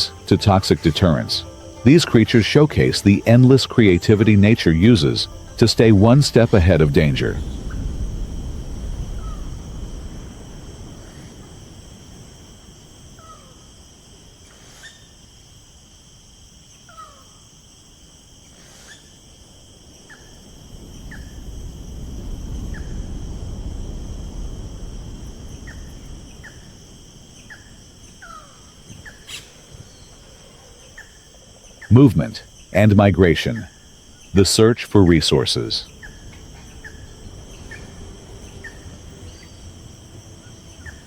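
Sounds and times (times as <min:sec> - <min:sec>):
descending bird chirps: 0:00.0 - 0:11.5, 0:25.5 - 0:41.0
insect trilling chorus: 0:00.0 - 0:41.0
low rumble: 0:04.0 - 0:11.1, 0:35.8 - 0:41.0.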